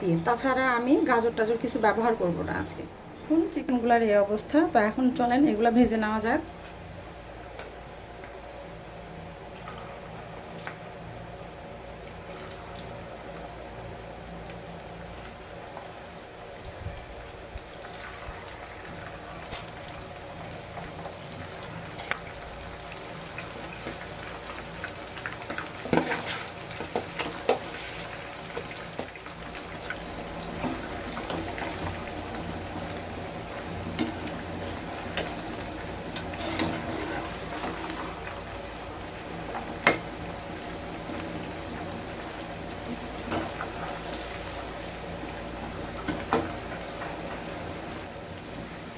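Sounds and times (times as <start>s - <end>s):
chicken deep-frying in oil: 9.4s - 48.9s.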